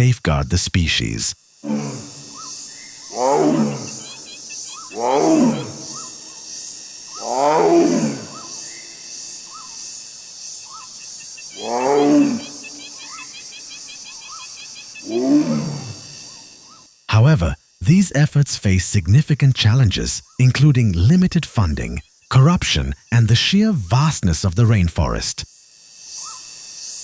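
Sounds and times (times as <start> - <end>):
steady high buzz: 0.0 - 24.3
tiger roaring: 1.6 - 2.4, 3.1 - 6.4, 7.1 - 8.6, 11.6 - 12.8, 15.0 - 16.2
faint regular chirps: 3.8 - 5.0, 10.5 - 15.1.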